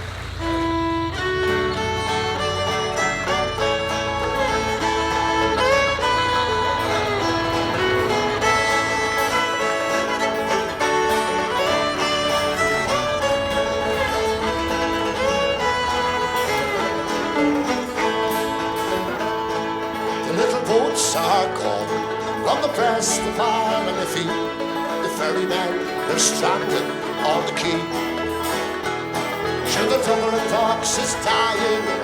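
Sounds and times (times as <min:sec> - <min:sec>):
fiddle melody: 0:00.0 - 0:32.0
guitar accompaniment: 0:00.0 - 0:32.0.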